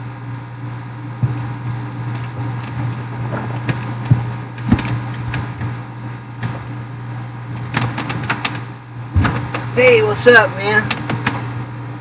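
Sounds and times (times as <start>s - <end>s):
low mechanical hum: 0.0s - 12.0s
sharp clicks and knocks: 2.1s - 5.8s, 7.6s - 9.7s, 10.8s - 11.4s.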